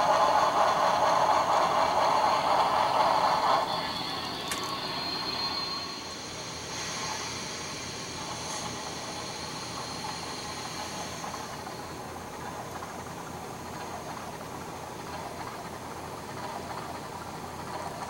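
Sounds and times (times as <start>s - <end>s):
steam hiss through small speaker: 0.8s - 12.1s.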